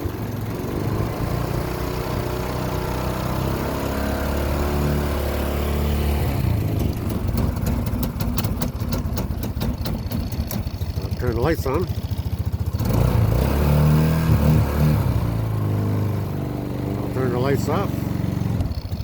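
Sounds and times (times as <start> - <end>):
atv engine running: 0.0 - 19.0
engine misfire pops: 6.7 - 11.1.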